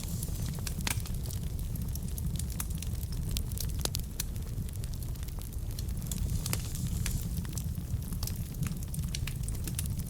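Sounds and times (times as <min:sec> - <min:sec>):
burning logs crackling and popping: 0:00.0 - 0:10.0
wood fire rumbling: 0:00.0 - 0:10.0.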